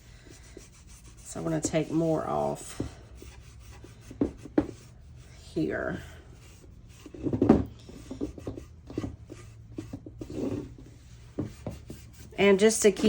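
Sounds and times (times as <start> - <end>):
wet paper towel wiping a box: 0.1 - 5.7.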